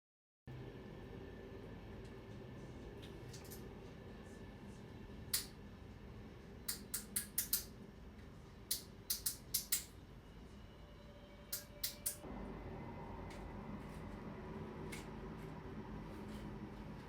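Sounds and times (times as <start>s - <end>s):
low steady hum: 0.5s - 17.0s
sharp clicks: 8.7s - 9.9s.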